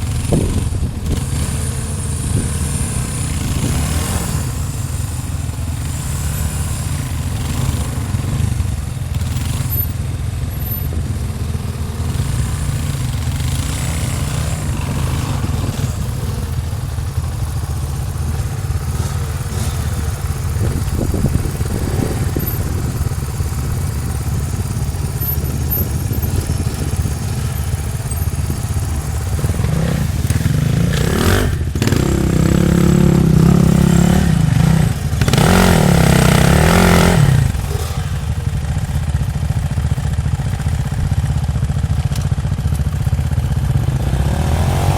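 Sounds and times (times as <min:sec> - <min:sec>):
dirt bike engine running: 0:00.0 - 0:44.9.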